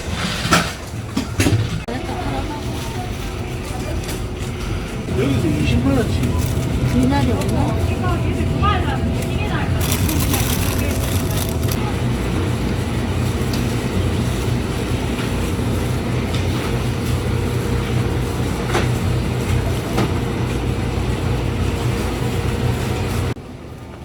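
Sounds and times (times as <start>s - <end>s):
road and engine rumble in car: 5.1s - 11.9s.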